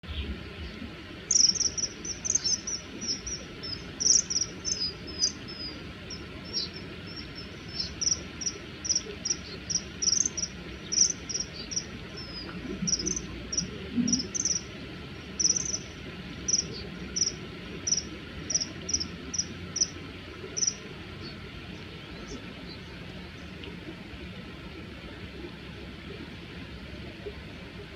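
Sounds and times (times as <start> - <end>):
kingfishers calling: 1.2 - 21.4.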